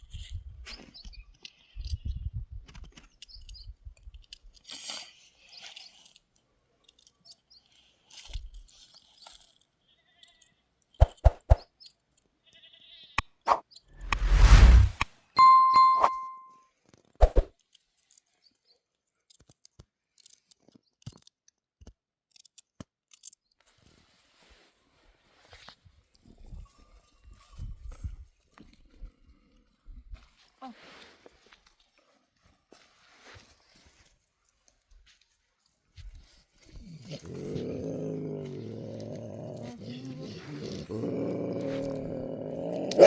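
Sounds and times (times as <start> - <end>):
dog howling low: 36.8 - 43.0.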